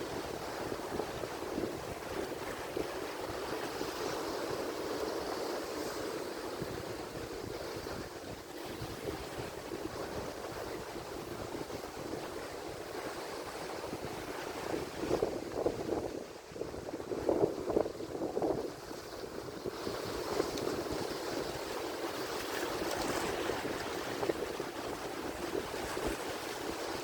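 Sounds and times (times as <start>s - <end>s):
ocean surf washing ashore: 0.0s - 27.0s
wind on microphone: 0.0s - 27.0s.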